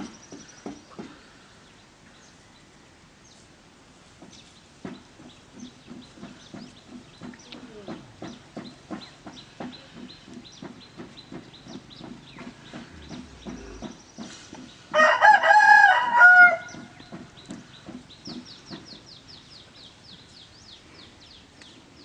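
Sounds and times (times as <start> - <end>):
bird low clucks: 4.9 - 19.0.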